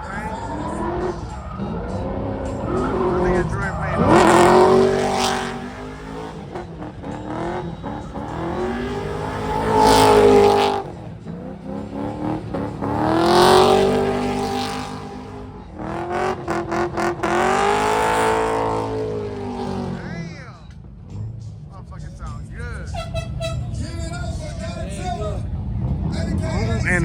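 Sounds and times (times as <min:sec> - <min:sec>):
exhaust crackles: 0:00.0 - 0:20.8
car engine revving: 0:00.0 - 0:27.0.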